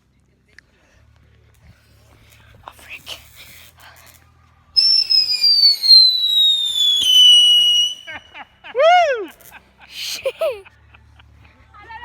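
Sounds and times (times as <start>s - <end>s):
whistling firework: 4.8s - 9.4s.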